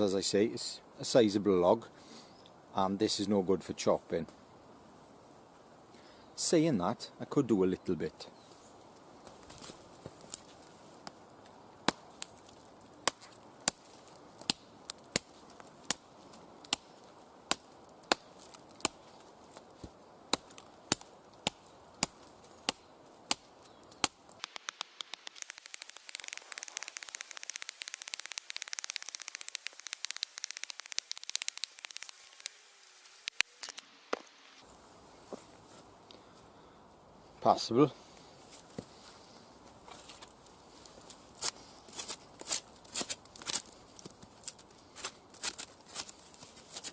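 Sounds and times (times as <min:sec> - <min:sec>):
rapid crackling ticks with hiss: 0:24.0 - 0:33.5.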